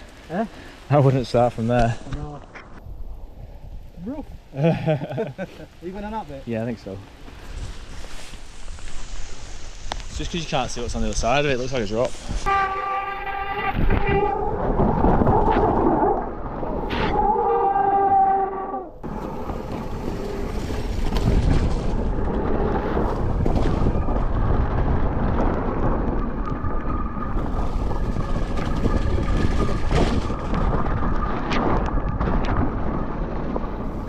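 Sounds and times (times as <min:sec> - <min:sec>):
wind on microphone: 0:07.4 - 0:34.0
bike tyres and frame rattling: 0:19.0 - 0:34.0.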